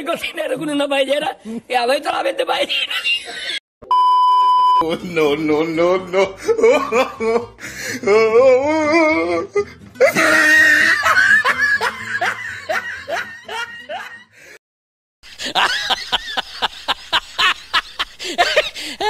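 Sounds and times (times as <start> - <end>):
man laughing high-pitched: 4.9 - 8.3, 10.0 - 14.2, 15.3 - 19.0.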